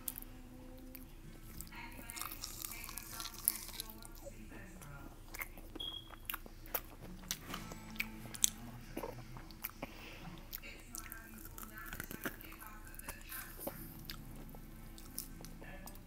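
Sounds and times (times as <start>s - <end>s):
chewing crunchy food: 0.0s - 16.0s.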